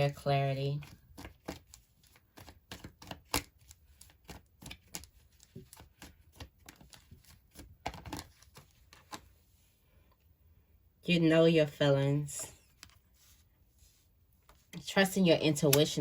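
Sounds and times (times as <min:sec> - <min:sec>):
cards being shuffled: 0:00.8 - 0:09.5.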